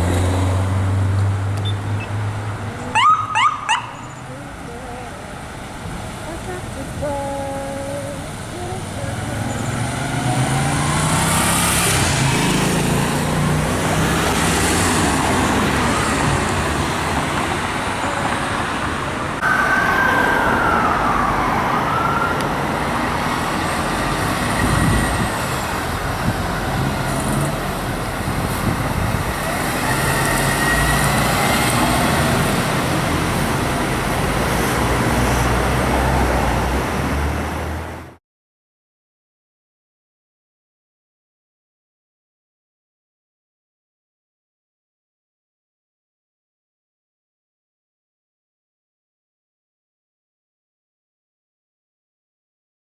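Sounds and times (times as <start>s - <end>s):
heavy engine and road noise: 0.0s - 38.2s
emergency vehicle sirens wailing: 2.6s - 12.7s, 19.4s - 37.9s.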